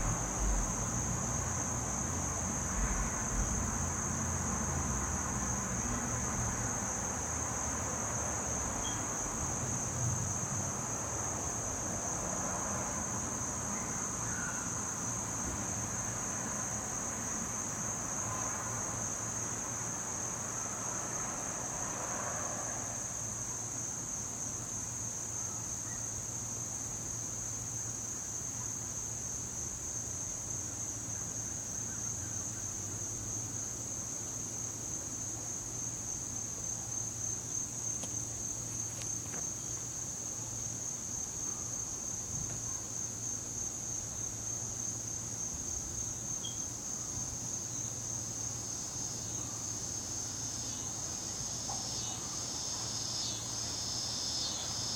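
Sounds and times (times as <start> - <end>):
faint background rumble: 0.0 - 14.2
crickets chirring: 0.0 - 54.9.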